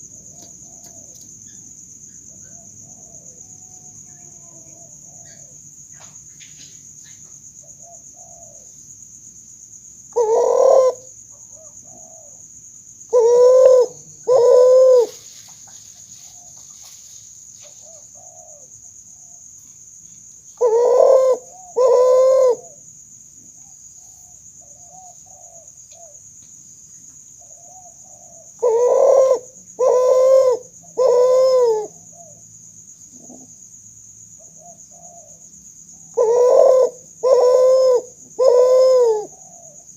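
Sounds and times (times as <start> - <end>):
dove cooing: 0.0 - 1.2, 2.5 - 5.6, 7.6 - 8.7, 10.1 - 12.4, 13.1 - 16.6, 17.8 - 19.4, 20.6 - 22.8, 24.0 - 26.2, 27.4 - 32.4, 34.4 - 35.4, 36.0 - 39.9.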